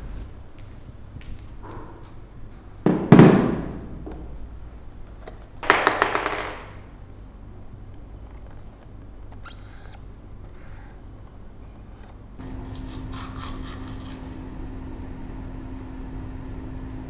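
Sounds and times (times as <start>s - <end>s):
low steady hum: 6.7s - 17.0s.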